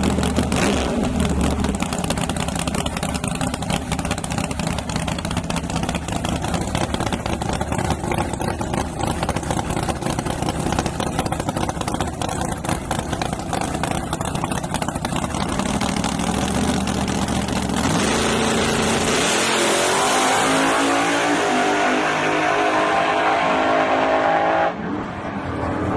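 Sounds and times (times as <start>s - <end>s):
truck engine choppy idle: 0.0s - 18.0s
engine accelerating hard: 0.0s - 25.9s.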